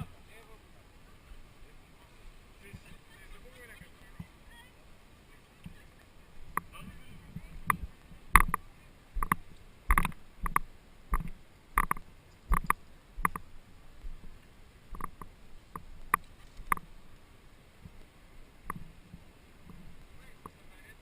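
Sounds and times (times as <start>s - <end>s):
kayak paddle knocks: 7.4s - 8.6s, 9.2s - 14.3s.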